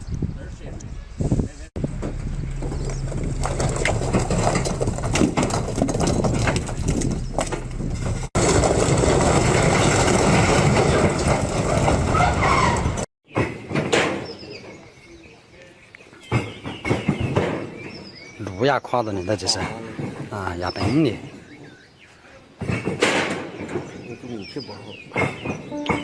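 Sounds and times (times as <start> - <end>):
people talking: 0.4 - 1.7, 18.4 - 21.2, 24.1 - 25.0, 25.7 - 26.0.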